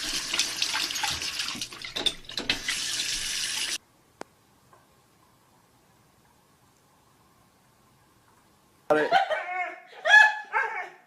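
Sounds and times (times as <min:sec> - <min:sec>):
water running from tap: 0:00.0 - 0:03.8.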